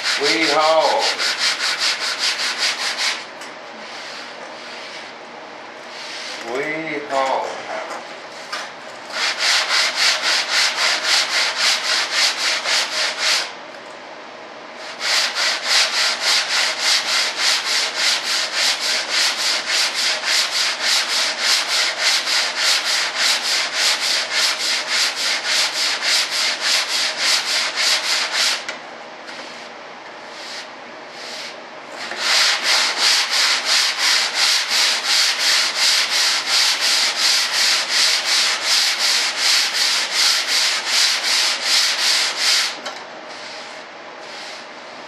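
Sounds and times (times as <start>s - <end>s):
sandpaper strokes: 0.0s - 3.2s, 5.9s - 6.4s, 9.1s - 13.5s, 14.8s - 28.6s, 30.3s - 44.7s.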